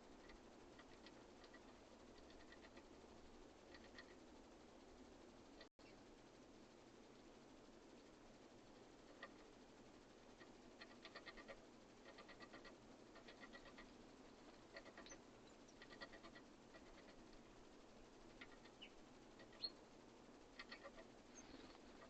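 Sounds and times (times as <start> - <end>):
small bird ticking chatter: 0.0 - 4.3, 8.9 - 22.0
high bird chirps: 18.4 - 19.8.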